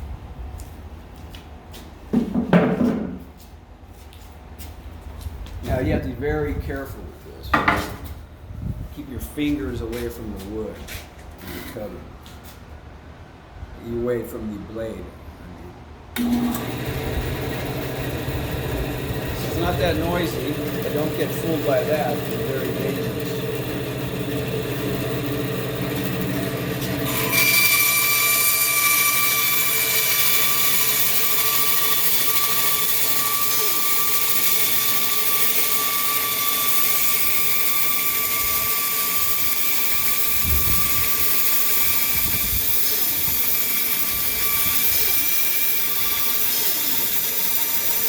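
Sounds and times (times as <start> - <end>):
band saw running: 16.2 - 48.0
shop vacuum running: 16.2 - 48.0.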